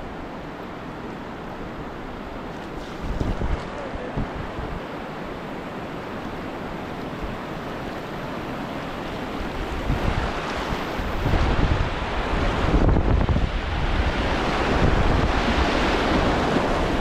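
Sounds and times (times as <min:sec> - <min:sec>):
rushing river whitewater: 0:00.0 - 0:17.0
wind buffeting microphone: 0:02.8 - 0:04.9, 0:09.3 - 0:17.0.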